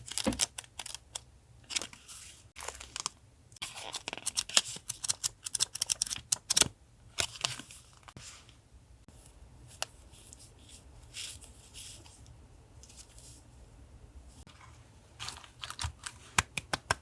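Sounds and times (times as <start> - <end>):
soft paper rustles: 7.2 - 13.6, 14.4 - 16.6
paper crinkling and clicking: 15.2 - 17.0.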